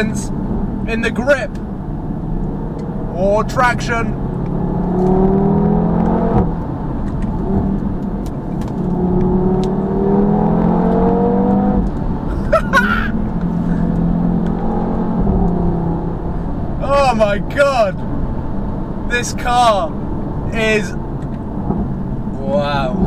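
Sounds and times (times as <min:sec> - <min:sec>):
car engine accelerating hard: 0:00.0 - 0:23.0.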